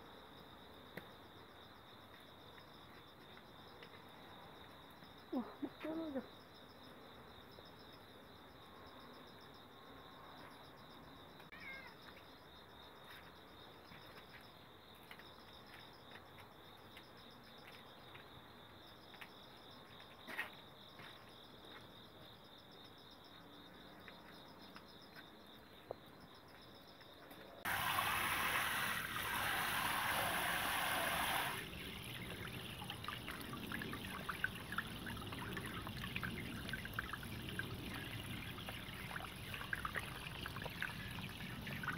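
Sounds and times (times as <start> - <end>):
water pouring into plastic basin: 27.7 - 41.9
grapes swished in water: 31.2 - 41.9.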